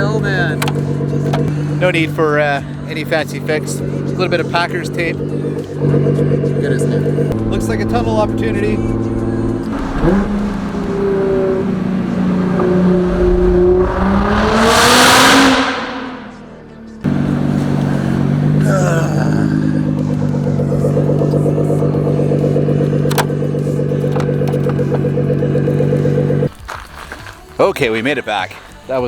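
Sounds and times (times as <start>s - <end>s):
car engine droning at cruise: 0.0s - 26.5s
car engine revving hard: 0.0s - 26.5s.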